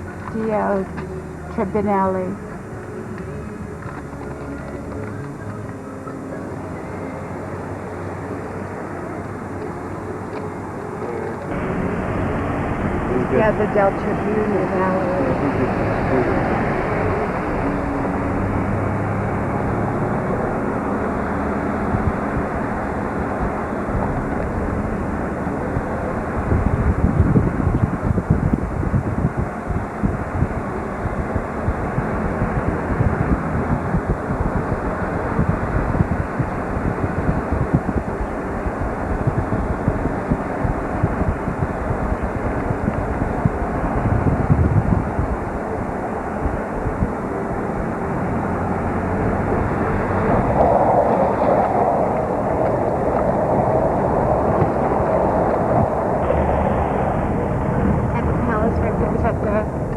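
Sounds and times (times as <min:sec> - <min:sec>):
truck road and engine noise: 0:00.0 - 0:59.9
wind on microphone: 0:06.5 - 0:59.9.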